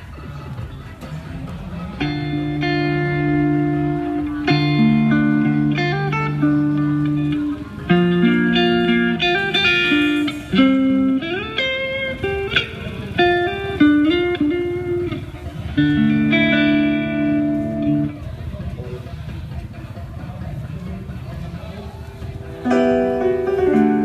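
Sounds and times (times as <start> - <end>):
electric guitar notes and chords: 1.0 - 19.0, 22.1 - 24.0.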